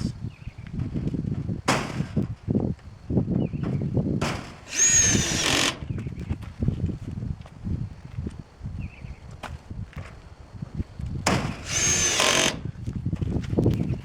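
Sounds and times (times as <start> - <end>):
power drill driving a screw: 4.7 - 5.8, 11.6 - 12.6.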